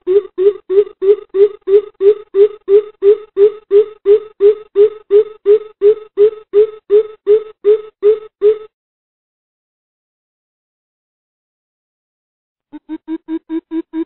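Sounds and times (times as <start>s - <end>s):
bird hooting: 0.0s - 8.7s.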